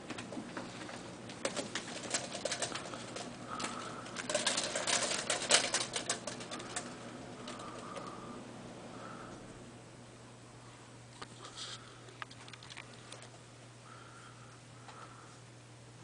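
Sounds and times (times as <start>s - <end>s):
cat claws scratching: 1.4s - 8.0s.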